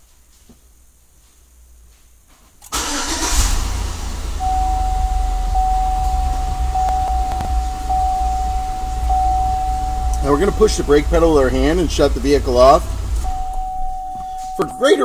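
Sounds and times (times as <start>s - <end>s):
car engine starting and running: 2.6s - 15.0s
steady high tone: 3.6s - 15.0s.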